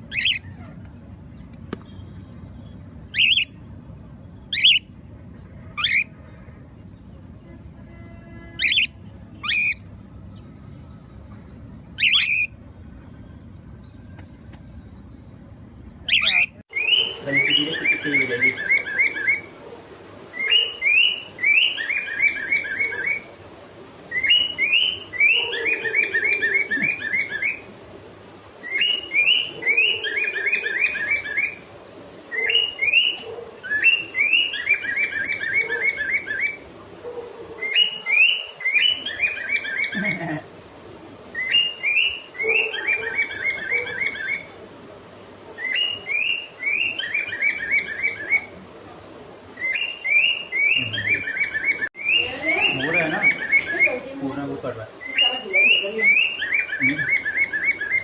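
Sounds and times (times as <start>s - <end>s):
cockatiel whistling song: 3.1s - 3.6s, 12.0s - 12.6s, 16.1s - 19.5s, 20.3s - 23.3s, 24.1s - 27.7s, 28.6s - 31.7s, 32.3s - 36.6s, 37.6s - 40.2s, 41.3s - 44.6s, 45.6s - 48.6s, 49.6s - 54.0s, 55.0s - 58.0s.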